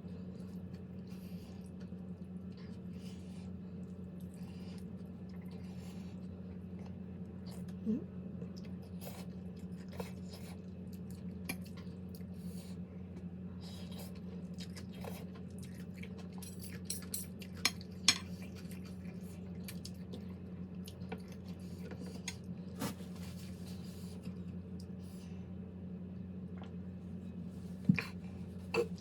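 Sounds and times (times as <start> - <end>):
steady low hum: 0.0 - 29.0
utensils clinking on a plate: 16.4 - 18.3.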